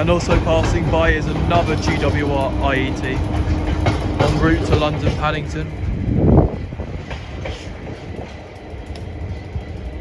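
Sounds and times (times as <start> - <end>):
clicks from the track: 0.0 - 5.4
passenger train passing: 0.0 - 10.0.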